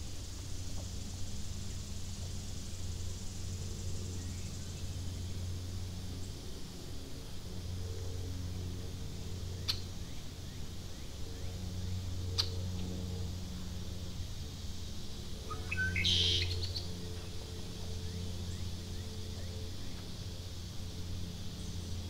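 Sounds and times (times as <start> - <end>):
low hum: 0.0 - 22.0
bird call: 15.4 - 16.9.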